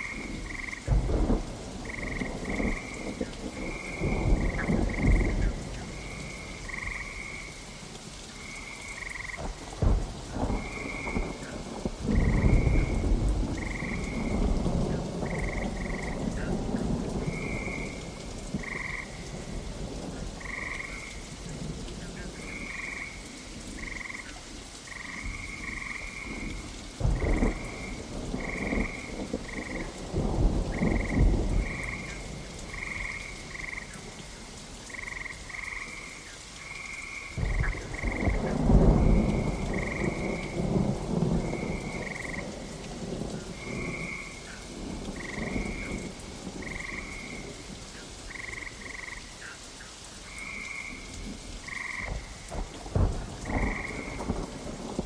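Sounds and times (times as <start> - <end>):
thunder rumbling: 0.0 - 7.6, 8.4 - 24.2, 24.9 - 36.0, 37.2 - 49.2, 50.3 - 55.0
frogs croaking: 0.0 - 55.0
rain falling: 0.0 - 55.0.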